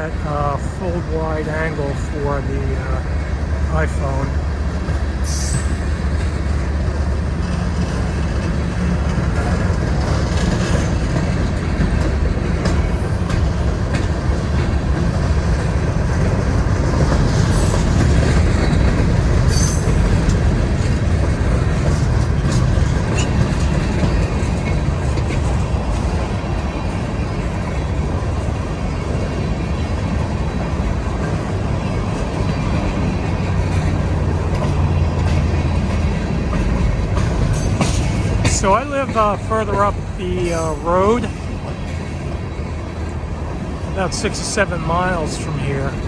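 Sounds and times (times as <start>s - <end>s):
train wheels rumbling on rail: 0.0s - 46.0s
sharp metallic squeals: 5.2s - 6.0s, 19.5s - 20.0s.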